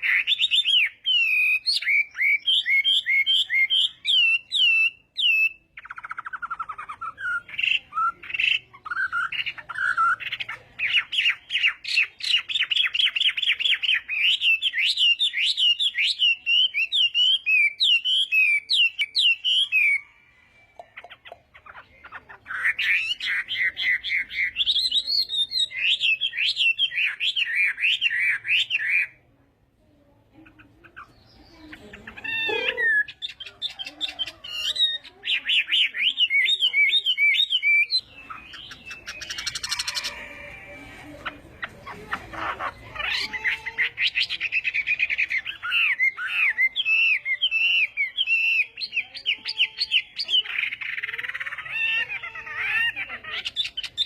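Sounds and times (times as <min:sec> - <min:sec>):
bird singing whistled notes: 0:00.0 - 0:08.2, 0:10.9 - 0:20.0, 0:34.5 - 0:40.2.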